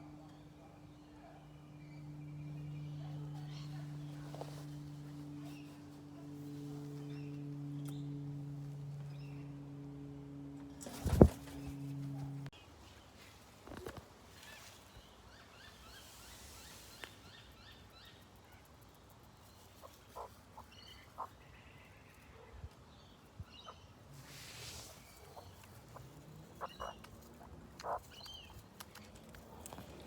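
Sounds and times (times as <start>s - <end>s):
faint bird calls and chirps: 12.6s - 30.0s.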